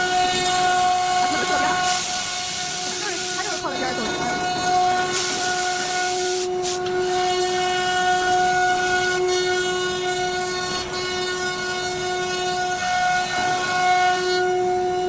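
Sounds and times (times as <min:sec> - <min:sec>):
cnc router spindle whining: 0:00.0 - 0:15.0
burst of hiss: 0:00.4 - 0:04.0, 0:04.8 - 0:06.9.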